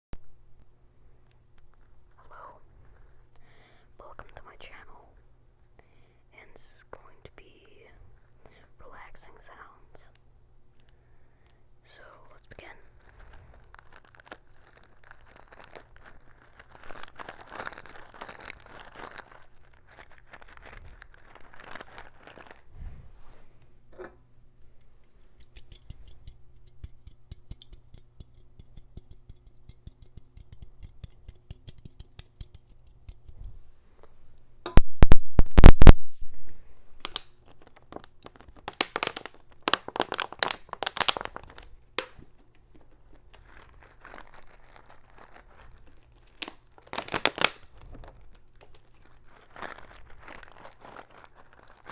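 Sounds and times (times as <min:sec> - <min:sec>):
crinkling and rustling: 0:12.8 - 0:25.4, 0:37.0 - 0:51.9
crackling snaps: 0:34.8 - 0:36.3, 0:37.0 - 0:42.6, 0:46.2 - 0:47.9.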